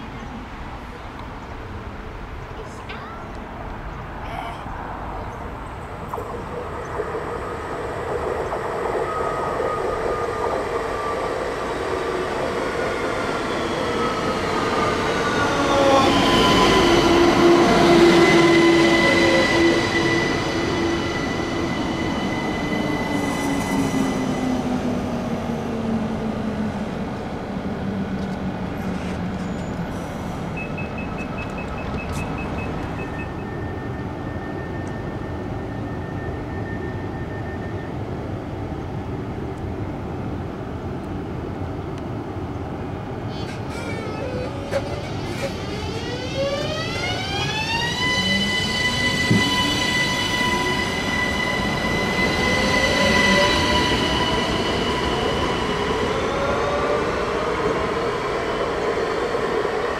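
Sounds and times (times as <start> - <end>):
train passing: 0.0 - 59.9
whining tones dropping in pitch: 43.4 - 57.1.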